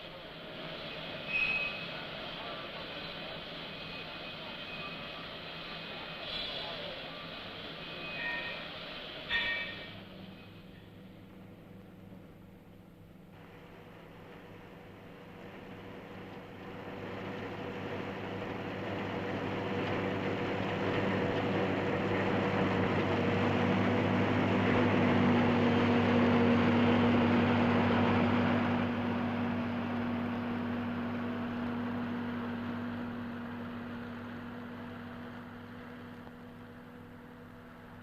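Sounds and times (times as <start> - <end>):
engine humming: 10.0 - 38.0.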